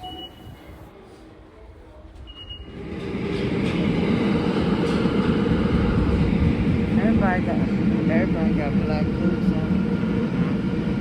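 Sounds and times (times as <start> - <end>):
short high beep: 0.0 - 0.6
metro train rumble: 0.0 - 11.0.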